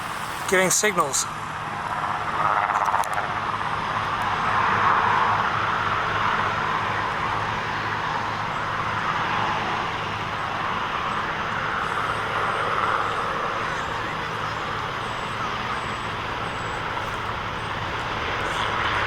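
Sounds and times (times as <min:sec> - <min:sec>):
helicopter engines and rotors drone: 0:00.0 - 0:19.0.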